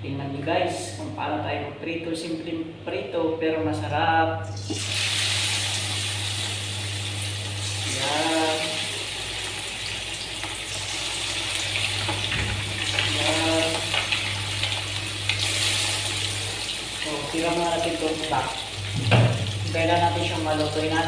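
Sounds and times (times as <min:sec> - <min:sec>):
chicken sizzling in hot oil: 0:04.6 - 0:21.0.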